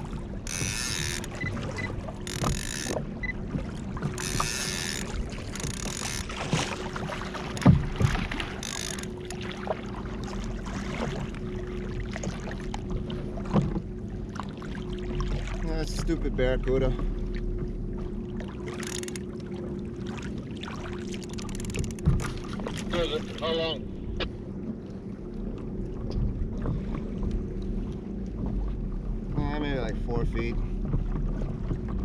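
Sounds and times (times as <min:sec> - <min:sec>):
water splashing: 0:00.0 - 0:32.0
knocks on kayak hull: 0:07.6 - 0:08.4.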